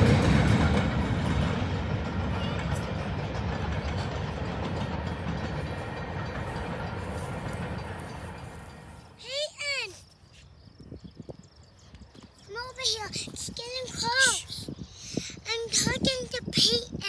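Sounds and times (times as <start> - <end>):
train wheels rumbling: 0.0 - 10.0.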